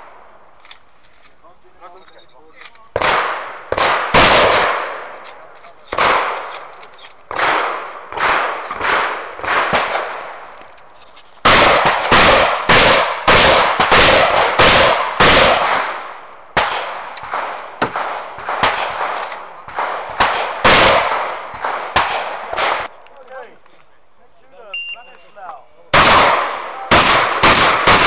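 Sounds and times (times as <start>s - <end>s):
shotgun shots with echo: 2.9s - 10.4s, 11.4s - 22.9s, 25.9s - 28.0s.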